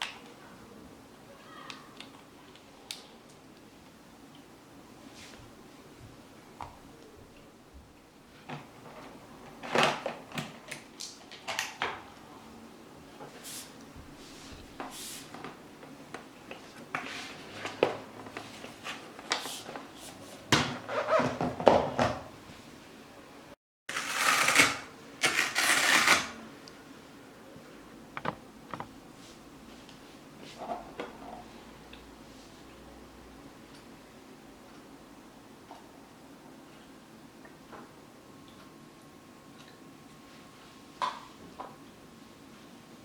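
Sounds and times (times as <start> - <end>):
plastic parts clicking and knocking: 28.2 - 28.9.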